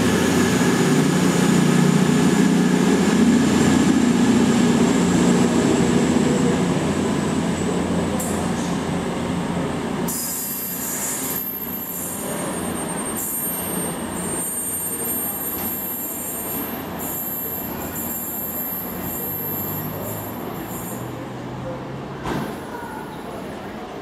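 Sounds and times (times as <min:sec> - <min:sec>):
diesel train engines humming: 0:00.0 - 0:24.0
wheels squealing on track: 0:10.1 - 0:21.1.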